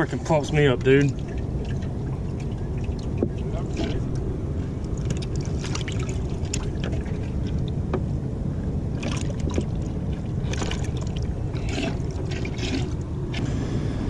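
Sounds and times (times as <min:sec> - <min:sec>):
boat engine rumble: 0:00.0 - 0:14.0
crackling splashes or knocks: 0:09.0 - 0:13.0.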